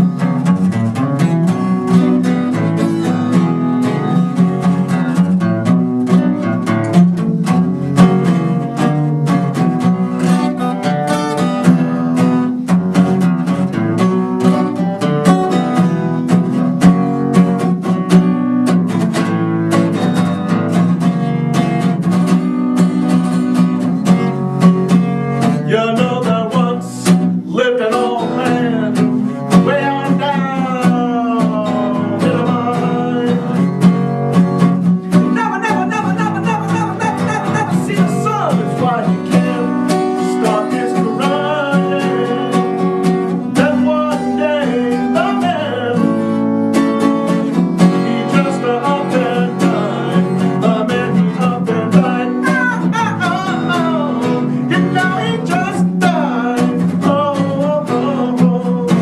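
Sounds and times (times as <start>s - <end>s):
acoustic guitar picking: 0.0s - 59.0s
person singing: 25.4s - 34.2s, 35.1s - 46.5s, 47.3s - 59.0s.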